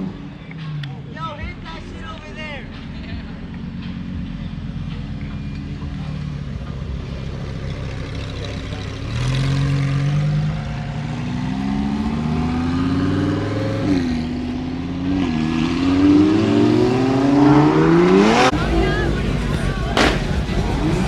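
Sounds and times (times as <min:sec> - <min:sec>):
car engine accelerating: 0:00.0 - 0:21.0
sharp bang: 0:19.9 - 0:20.6.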